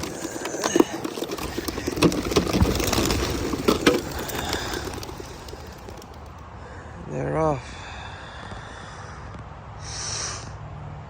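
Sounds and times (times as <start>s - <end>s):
pigeon wingbeats: 0.0s - 6.4s.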